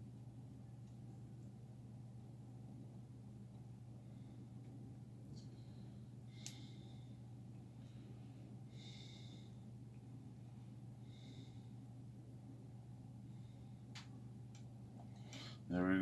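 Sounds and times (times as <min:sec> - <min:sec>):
steady low hum: 0:00.0 - 0:16.0
faint breaths: 0:03.9 - 0:04.8, 0:05.4 - 0:12.0, 0:13.1 - 0:13.9, 0:15.0 - 0:15.7.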